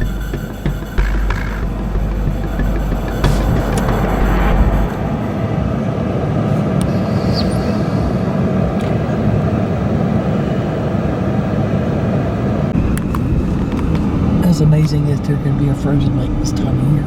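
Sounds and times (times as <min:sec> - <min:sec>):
car interior road noise: 0:00.0 - 0:07.1, 0:12.5 - 0:17.0
low engine drone: 0:00.0 - 0:08.9, 0:12.4 - 0:17.0.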